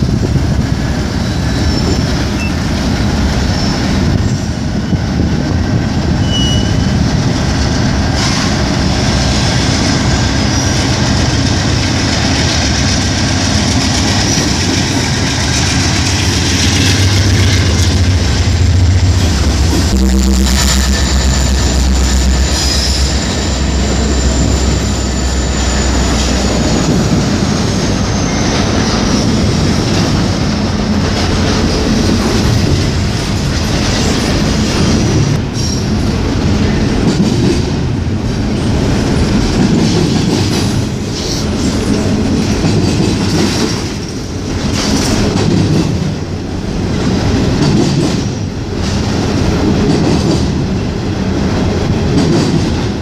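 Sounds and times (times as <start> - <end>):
diesel locomotive engine drone: 0.0 - 53.0
railcars clacking over rail joints: 0.0 - 53.0
high wheel squeal: 6.2 - 7.0, 20.4 - 29.6.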